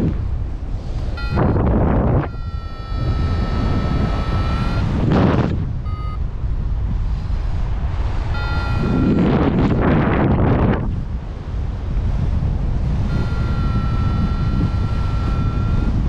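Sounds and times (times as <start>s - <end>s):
wind buffeting microphone: 0.0s - 16.0s
electronic variometer beeps: 1.1s - 6.3s, 8.3s - 9.6s, 13.0s - 16.0s.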